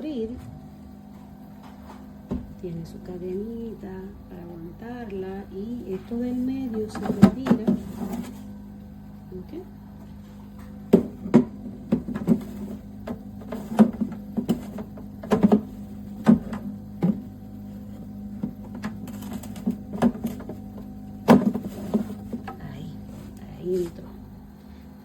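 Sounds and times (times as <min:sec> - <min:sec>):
compressor fridge humming: 0:00.0 - 0:25.0
fridge lid knocks and clacks: 0:06.8 - 0:08.4, 0:10.6 - 0:17.3, 0:17.9 - 0:22.6.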